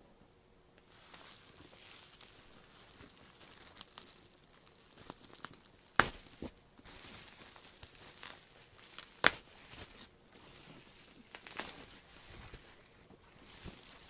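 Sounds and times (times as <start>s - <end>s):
packaging crinkling and rustling: 0.8s - 14.0s
sharp snaps: 3.8s - 6.5s, 9.0s - 9.5s.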